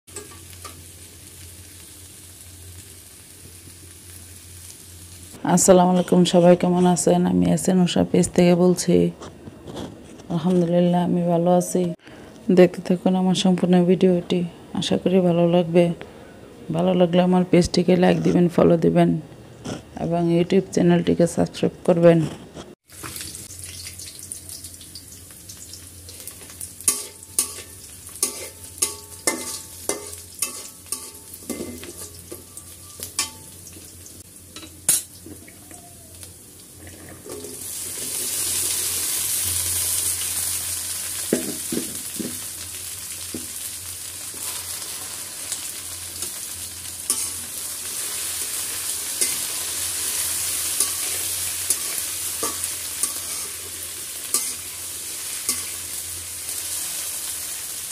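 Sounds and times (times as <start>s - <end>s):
loud sizzle of vegetables in oil: 0.1s - 5.4s, 22.8s - 57.9s
onions frying in oil: 0.1s - 7.7s, 22.8s - 57.9s
metal spatula scraping pan: 26.9s - 33.5s, 50.7s - 53.6s, 54.3s - 54.6s.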